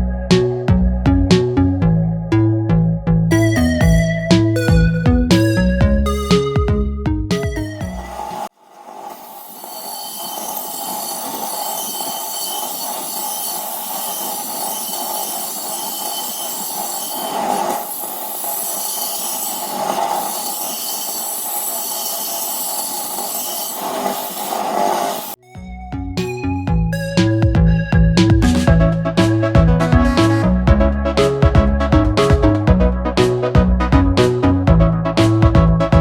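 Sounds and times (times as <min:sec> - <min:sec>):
power tool screeching on metal: 0:08.1 - 0:25.4.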